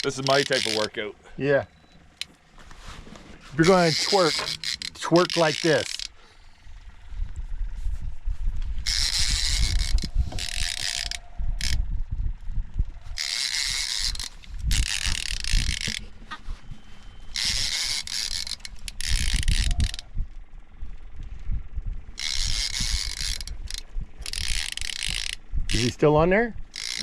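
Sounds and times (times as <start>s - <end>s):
fishing reel cranking: 0.0s - 1.1s, 3.6s - 6.8s, 8.8s - 12.0s, 12.8s - 16.2s, 17.3s - 20.2s, 22.1s - 26.1s, 26.7s - 27.0s
low rumble: 6.1s - 17.4s, 18.7s - 24.4s.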